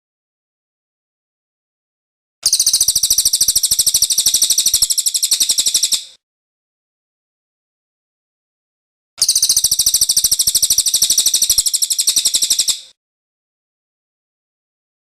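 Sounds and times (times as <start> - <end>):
bird trilling song: 2.4 - 6.2, 9.2 - 13.0.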